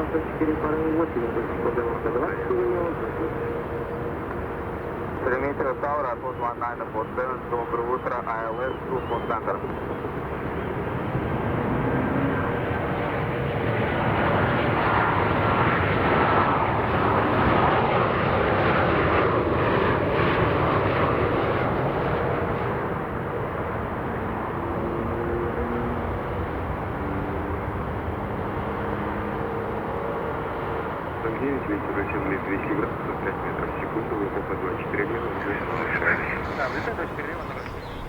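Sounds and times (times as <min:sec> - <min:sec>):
jet airliner engines passing: 0:00.0 - 0:38.0
faint descending engine whine: 0:07.9 - 0:17.4, 0:30.8 - 0:38.0.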